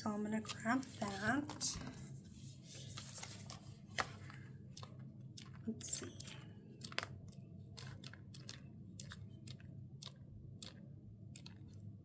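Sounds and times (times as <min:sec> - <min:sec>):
paper crinkling: 0:00.5 - 0:05.6.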